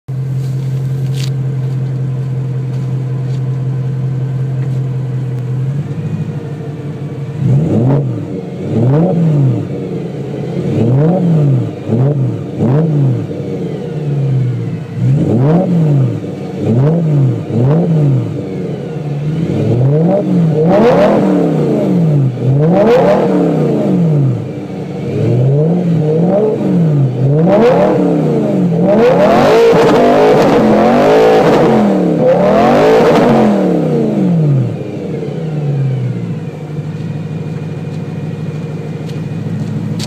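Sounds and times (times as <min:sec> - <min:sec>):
car engine idling and revving: 0:00.0 - 0:40.0.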